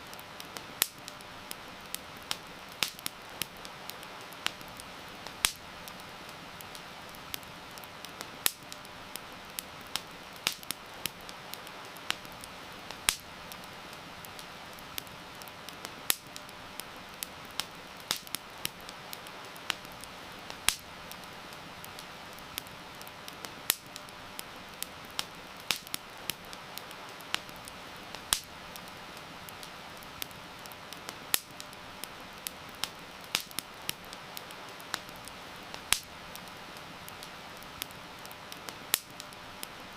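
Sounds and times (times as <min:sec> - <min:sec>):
campfire crackling and popping: 0:00.0 - 0:39.9
heavy rain hiss: 0:00.0 - 0:39.9.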